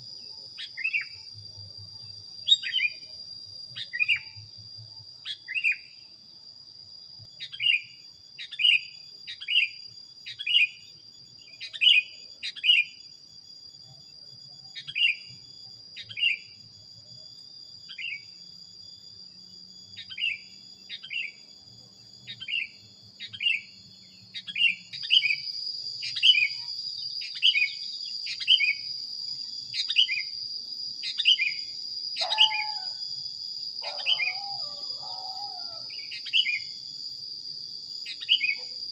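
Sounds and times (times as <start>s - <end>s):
high-pitched ringing drone: 0.0s - 38.9s
bird chirping: 20.0s - 21.5s, 22.2s - 30.3s, 31.0s - 33.0s, 33.8s - 36.8s, 38.0s - 38.9s
lower bird calls: 31.0s - 33.0s, 33.8s - 36.7s.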